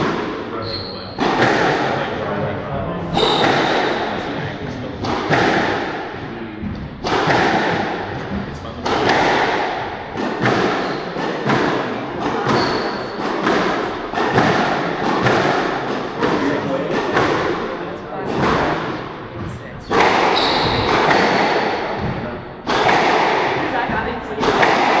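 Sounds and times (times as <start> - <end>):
squash racquet hits: 0.0 - 25.0
brief high squeak: 0.6 - 1.1
ball thuds against court walls: 1.2 - 2.0, 5.0 - 6.0, 6.6 - 17.6, 18.2 - 25.0.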